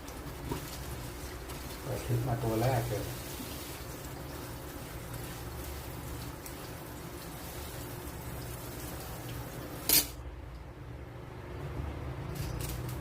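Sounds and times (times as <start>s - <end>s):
tap water running: 0.0s - 10.7s.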